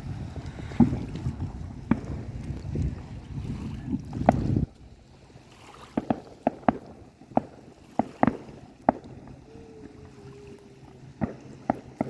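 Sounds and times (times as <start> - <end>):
fireworks popping and banging: 0.0 - 4.9, 5.9 - 12.0
faint steady tone: 4.7 - 12.0.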